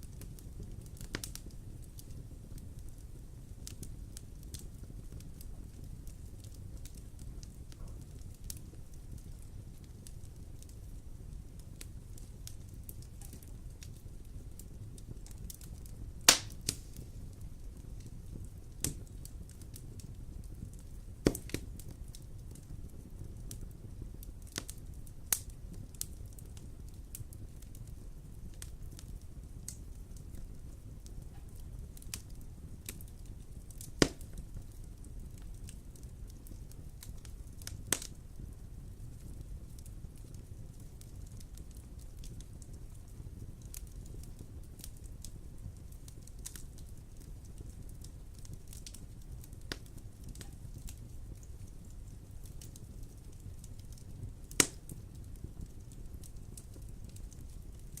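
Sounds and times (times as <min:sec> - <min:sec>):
fire crackling and popping: 0:00.0 - 0:58.0
wood fire rumbling: 0:00.0 - 0:58.0
sharp fire pop: 0:16.3 - 0:17.1, 0:21.2 - 0:21.6, 0:34.0 - 0:34.2.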